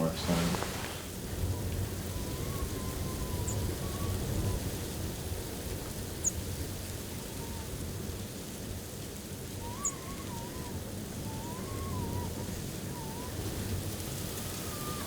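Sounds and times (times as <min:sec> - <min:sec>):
faint wavering whistle: 0:00.0 - 0:04.7, 0:09.6 - 0:15.0
blizzard wind gusting: 0:00.0 - 0:05.4.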